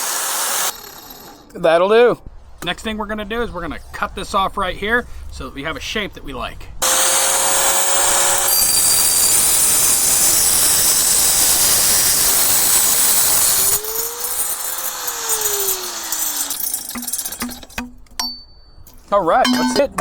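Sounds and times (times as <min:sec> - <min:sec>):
power tool cutting metal pipe: 0:00.0 - 0:01.1, 0:06.8 - 0:17.7.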